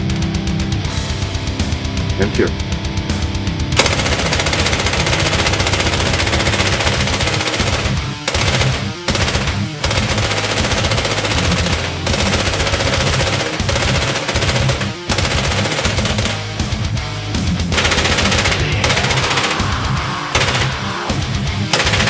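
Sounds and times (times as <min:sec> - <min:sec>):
paintball marker firing bursts: 0:03.8 - 0:16.8, 0:17.8 - 0:19.8, 0:20.4 - 0:20.9, 0:21.7 - 0:22.0.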